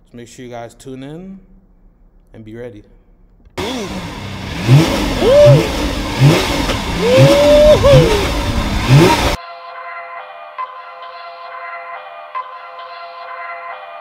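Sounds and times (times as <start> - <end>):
car engine revving: 3.6 - 9.4.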